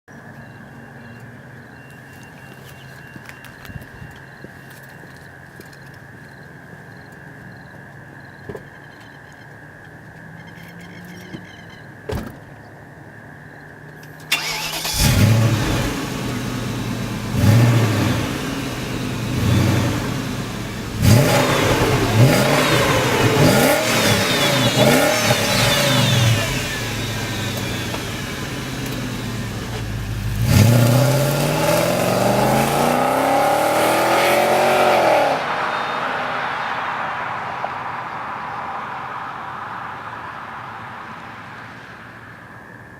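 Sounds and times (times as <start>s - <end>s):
car engine revving: 14.3s - 38.1s.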